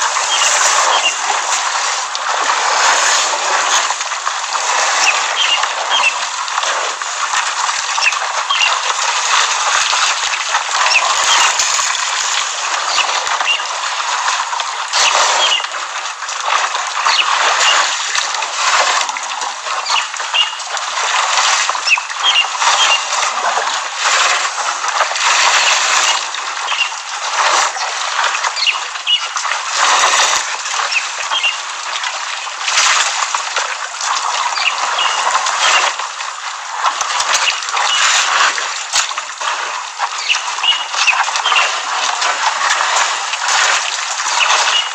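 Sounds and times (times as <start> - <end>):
water rushing and splashing: 0.0 - 44.9
small birds chirping: 0.2 - 1.2, 5.0 - 6.2, 8.0 - 8.8, 12.9 - 13.7, 15.1 - 15.6, 17.1 - 17.9, 19.8 - 20.6, 21.8 - 23.1, 25.7 - 26.9, 28.5 - 29.3, 30.9 - 31.6, 34.6 - 35.8, 40.2 - 41.7, 44.4 - 44.9.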